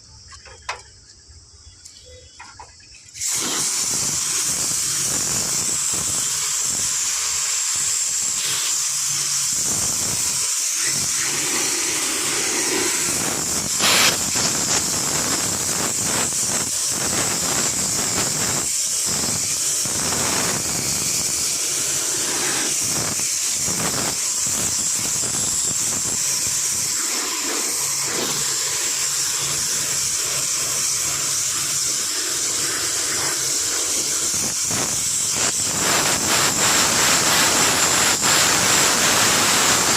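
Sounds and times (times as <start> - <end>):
pressurised jet hissing: 3.1 - 39.9
loud crackle: 3.2 - 21.4, 33.0 - 39.9.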